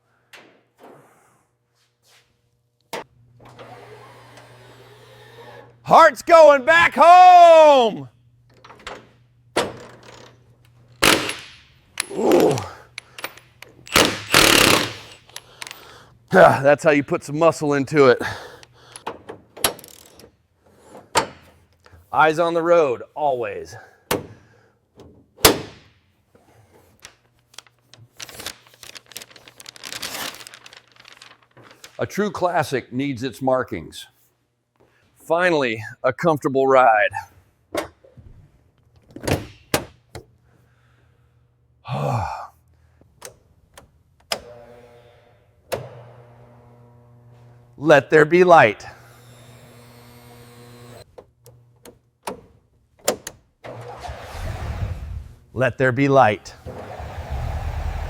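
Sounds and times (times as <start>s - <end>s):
crinkling tearing noise: 27.0s - 32.1s.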